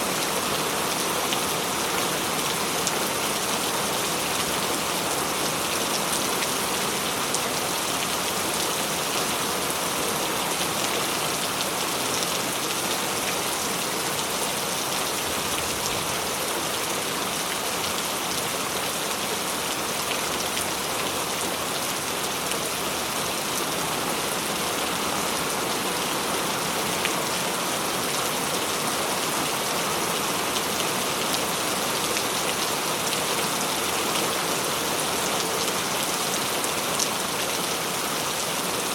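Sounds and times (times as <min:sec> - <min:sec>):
rain on hard surface: 0:00.0 - 0:38.9.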